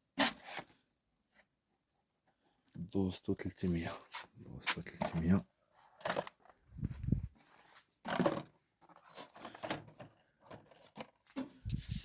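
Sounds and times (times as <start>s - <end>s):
packages rustling and knocking: 4.1s - 11.6s.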